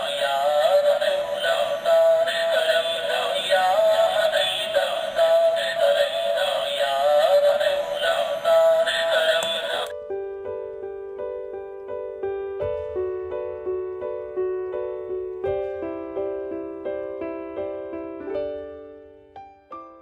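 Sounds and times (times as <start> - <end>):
tinny man singing call to prayer: 0.0 - 9.9
electronic keyboard melody: 0.0 - 20.0.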